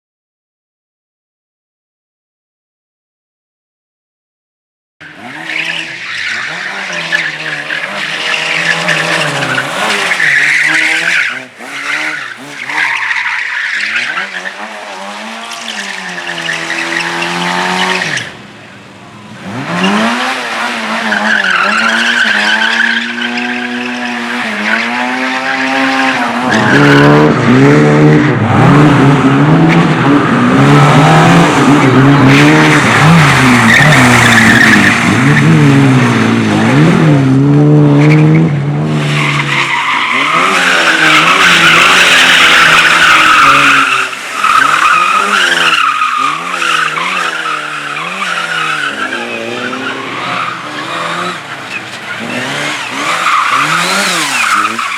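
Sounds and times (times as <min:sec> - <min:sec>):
race car engines revving: 0:05.0 - 0:54.9
tyres squealing: 0:05.4 - 0:18.4, 0:39.2 - 0:54.9.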